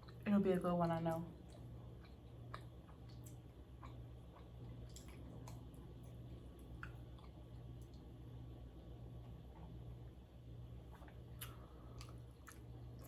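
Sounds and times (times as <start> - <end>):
chewing with wet mouth clicks: 0.0 - 0.2, 1.1 - 8.1, 10.9 - 13.0
low steady hum: 0.0 - 13.0.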